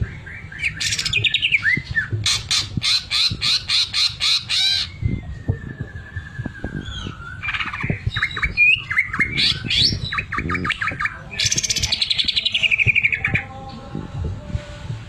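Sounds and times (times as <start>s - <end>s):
bird singing with trills: 0.0s - 13.9s.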